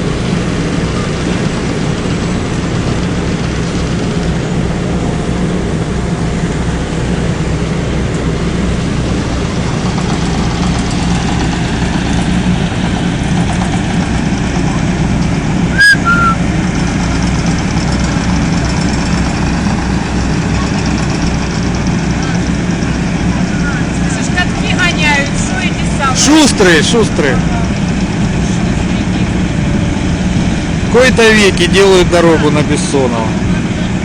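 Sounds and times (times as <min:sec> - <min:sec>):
heavy machinery engines droning: 0:00.0 - 0:34.0
high chirps: 0:15.8 - 0:16.4.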